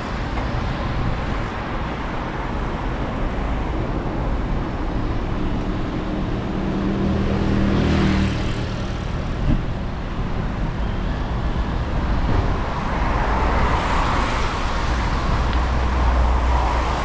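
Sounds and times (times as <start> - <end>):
tyres hissing on wet road: 12.9 - 17.0.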